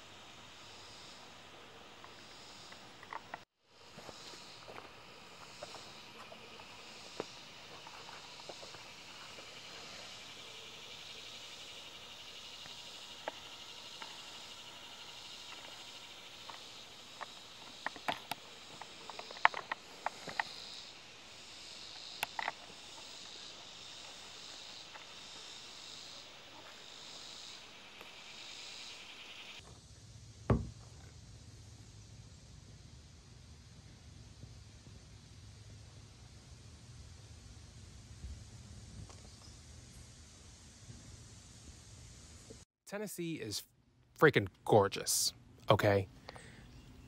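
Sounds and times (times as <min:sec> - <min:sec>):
insects chirring in trees: 0:00.0 - 0:43.6, 0:44.2 - 0:47.0
thump: 0:30.5 - 0:30.9.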